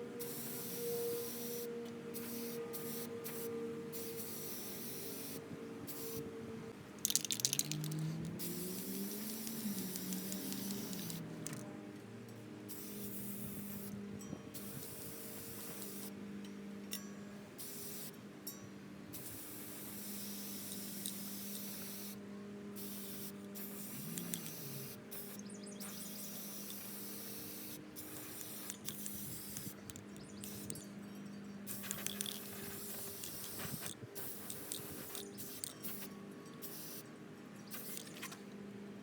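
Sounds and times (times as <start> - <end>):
spray hissing: 0.2 - 6.2, 7.1 - 11.3, 22.8 - 29.8, 31.7 - 37.0.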